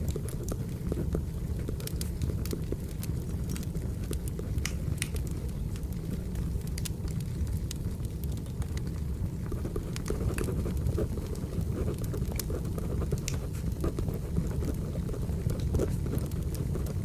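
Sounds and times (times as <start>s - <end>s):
wood fire roaring and crackling: 0.0s - 17.0s.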